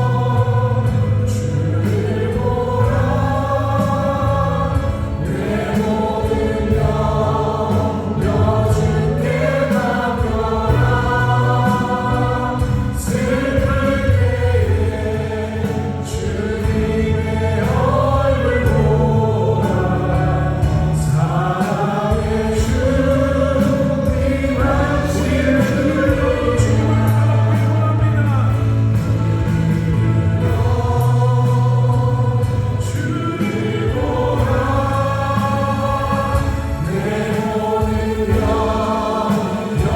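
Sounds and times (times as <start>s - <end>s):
acoustic guitar: 0.0s - 39.9s
drums: 0.0s - 39.9s
keyboards: 0.0s - 39.9s
vocalists singing together: 0.0s - 39.9s.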